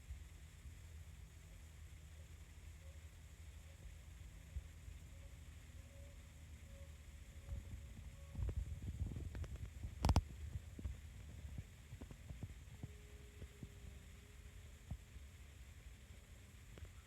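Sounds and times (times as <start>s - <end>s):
faint steady tone: 0.0s - 17.0s
small clicks: 7.4s - 15.2s
phone microphone handling rumble: 7.5s - 13.6s.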